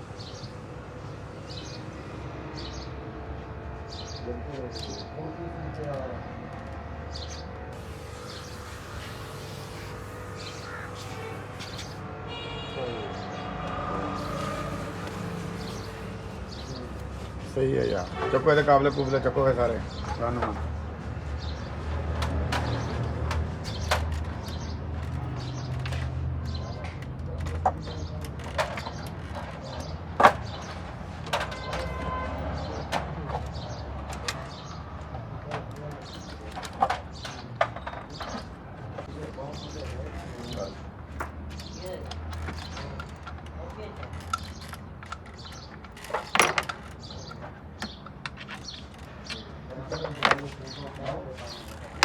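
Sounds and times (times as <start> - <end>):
small birds chirping: 0.0 - 1.9, 2.6 - 3.0, 3.9 - 6.2, 7.1 - 13.5, 14.2 - 22.0, 22.6 - 52.0
steady background hum: 0.0 - 22.0
metal tools clinking: 40.5 - 52.0.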